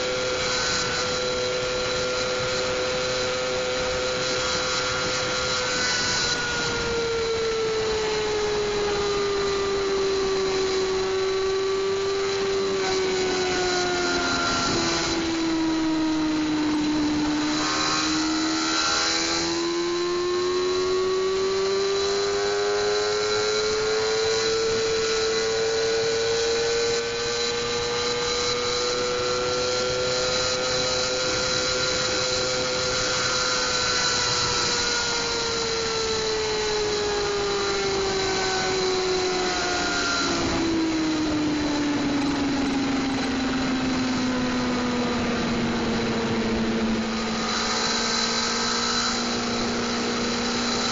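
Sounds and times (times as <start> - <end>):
motorcycle engine at high revs: 0.0 - 50.9.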